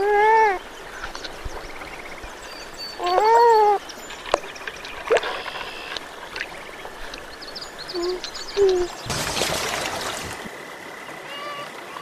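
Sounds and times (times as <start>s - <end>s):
water trickling: 0.0s - 12.0s
animal call: 11.2s - 12.0s.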